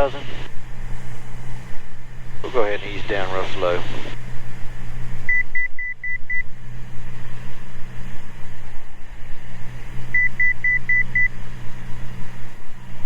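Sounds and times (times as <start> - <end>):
aircraft piston engine drone: 0.0 - 13.0
short cockpit beeps: 5.3 - 6.4, 10.2 - 11.3.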